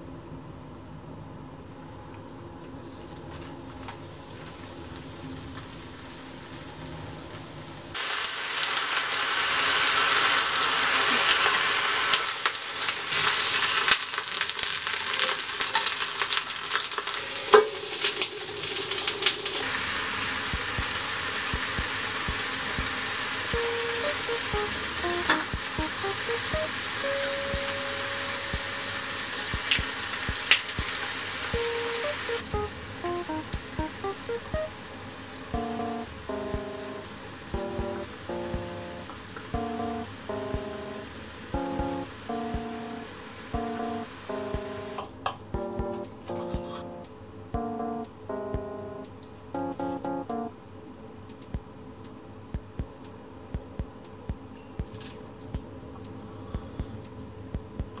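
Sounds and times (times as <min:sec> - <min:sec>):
food sizzling in frying pan: 0:08.0 - 0:45.0.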